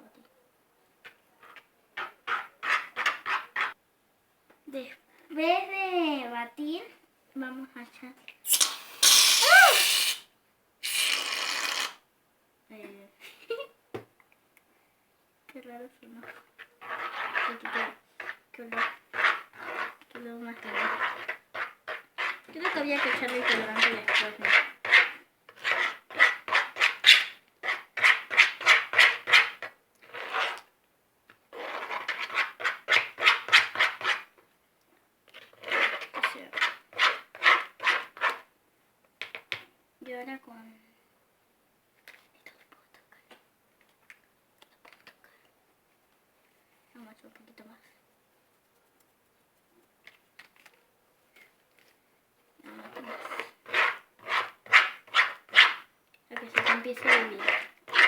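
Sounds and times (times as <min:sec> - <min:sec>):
spoon scraping a bowl: 0:16.2 - 0:30.6, 0:52.7 - 0:55.8, 0:56.4 - 0:58.0.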